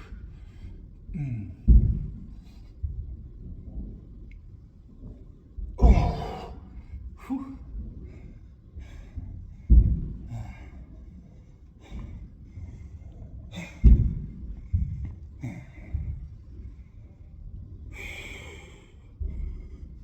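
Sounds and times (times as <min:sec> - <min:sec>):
low thud: 0:01.7 - 0:03.0, 0:05.8 - 0:06.6, 0:09.7 - 0:10.2, 0:13.8 - 0:15.1
forceful exhale: 0:05.8 - 0:06.8
person breathing hard: 0:05.8 - 0:07.6.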